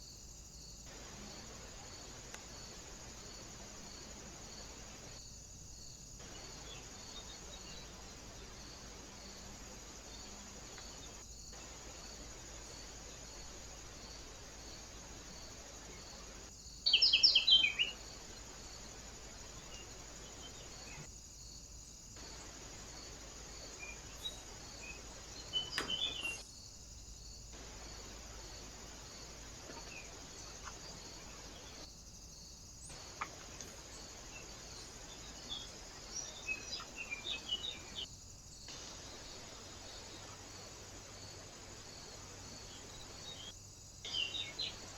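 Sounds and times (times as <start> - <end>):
steady high hiss: 0.0 - 44.9
small birds chirping: 0.9 - 21.1, 22.2 - 44.9.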